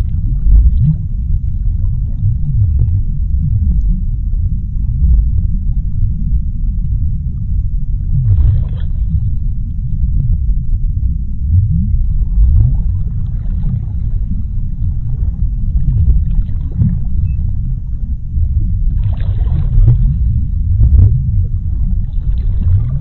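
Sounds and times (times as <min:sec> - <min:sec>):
deep underwater rumble: 0:00.0 - 0:23.0.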